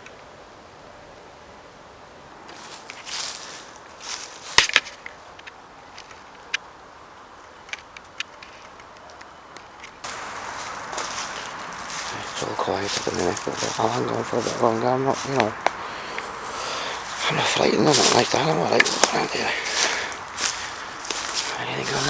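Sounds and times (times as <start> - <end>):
faint ticks: 7.4 - 17.3
light rustling: 7.5 - 22.0
sharp snaps: 7.7 - 22.0.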